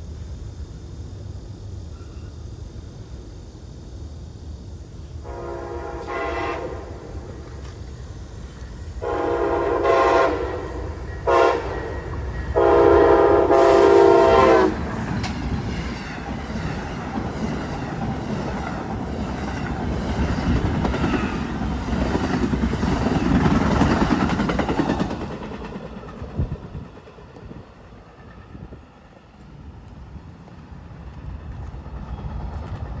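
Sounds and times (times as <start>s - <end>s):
train wheels clattering on rails: 4.5s - 33.0s
train air horn blasts: 5.2s - 7.6s, 9.0s - 14.9s.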